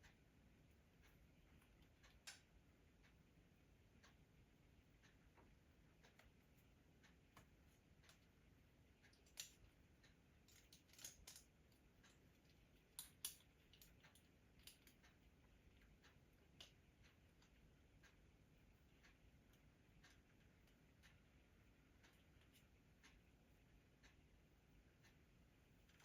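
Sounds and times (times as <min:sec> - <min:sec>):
small hardware clicking and tapping: 0:01.0 - 0:03.2, 0:09.0 - 0:18.2.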